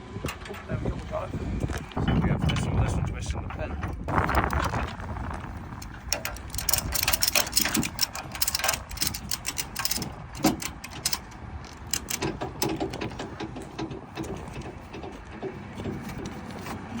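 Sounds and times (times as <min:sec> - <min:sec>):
low rumble: 0:00.0 - 0:10.4
metal chains clicking and clanking: 0:05.8 - 0:17.0.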